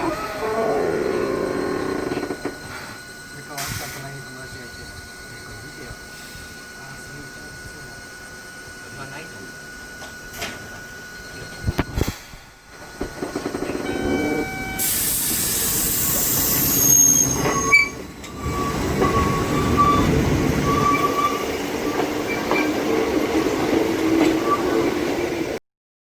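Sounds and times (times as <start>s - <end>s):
wheels squealing: 0.0s - 2.6s, 13.0s - 23.1s
train rumbling and clattering: 0.0s - 2.9s, 9.8s - 25.6s
loud hiss: 14.7s - 17.2s.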